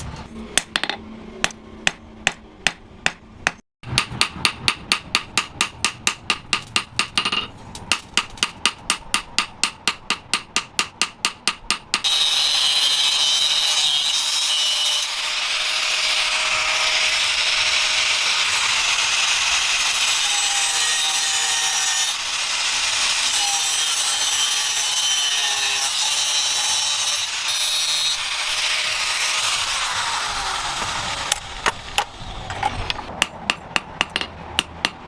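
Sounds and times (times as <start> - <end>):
hammer striking metal: 0.6 - 12.1, 33.1 - 35.0.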